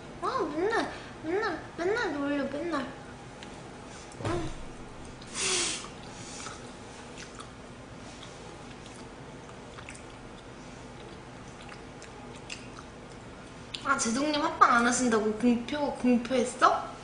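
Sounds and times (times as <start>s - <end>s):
person chewing food: 5.9s - 13.8s.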